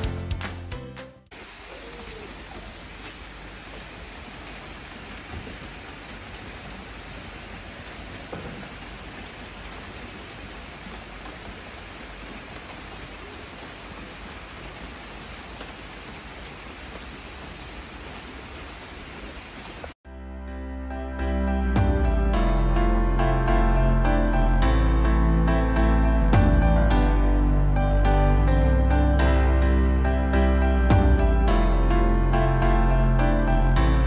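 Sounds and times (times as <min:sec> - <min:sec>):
steady hiss: 0:01.3 - 0:06.9.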